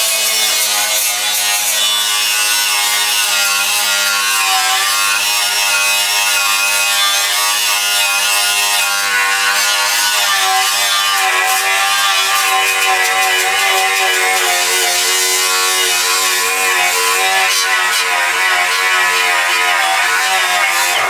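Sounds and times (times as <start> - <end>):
angle grinder motor whine: 3.0 - 21.0
disc grinding metal: 4.2 - 21.0.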